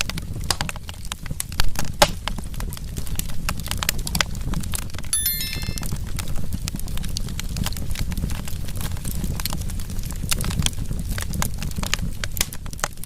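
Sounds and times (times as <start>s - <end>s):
high ringing chime: 5.2s - 5.9s.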